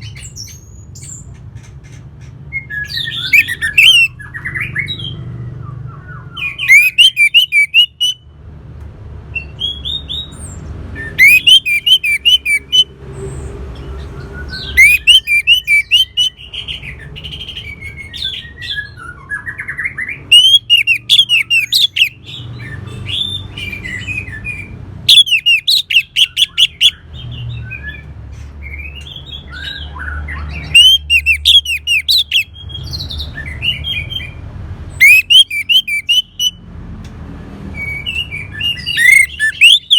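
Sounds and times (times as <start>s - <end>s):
thrush singing: 6.4s - 8.2s, 11.0s - 12.9s, 14.4s - 16.9s, 20.2s - 22.3s, 30.4s - 32.5s, 35.0s - 36.6s, 38.4s - 39.9s.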